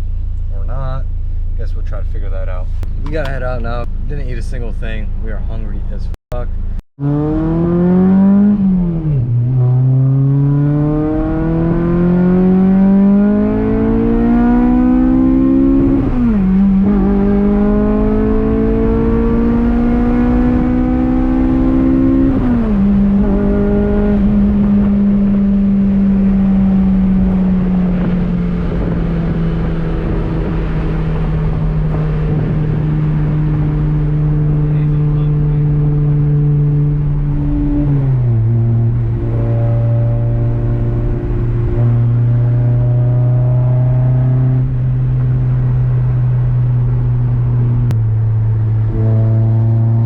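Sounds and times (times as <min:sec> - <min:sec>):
car engine accelerating through gears: 0:07.0 - 0:50.0.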